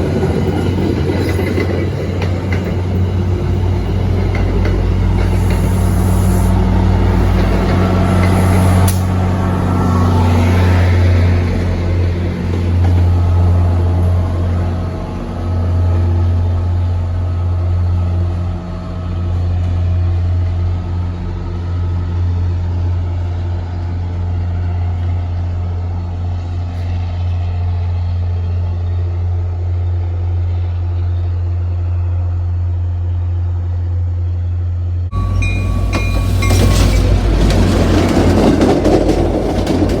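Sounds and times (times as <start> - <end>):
diesel locomotive engine droning: 0.0 - 40.0
rough train noise: 0.0 - 40.0
brief high tones: 35.1 - 37.6.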